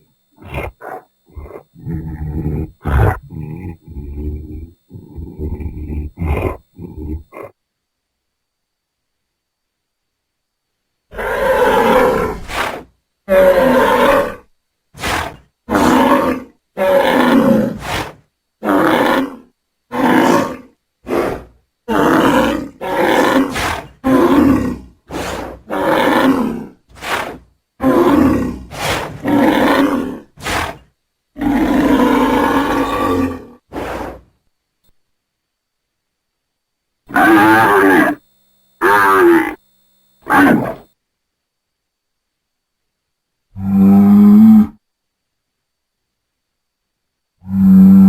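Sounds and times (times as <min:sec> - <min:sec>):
bull bellowing: 0:00.0 - 0:07.6, 0:11.1 - 0:34.3, 0:37.1 - 0:38.2, 0:38.8 - 0:39.6, 0:40.2 - 0:40.9, 0:43.6 - 0:44.8, 0:47.4 - 0:48.0.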